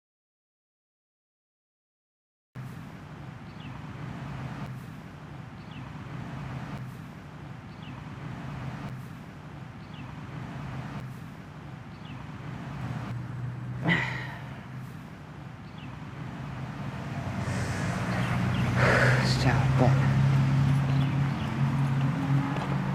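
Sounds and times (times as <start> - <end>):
steady low hum: 12.3 - 21.6.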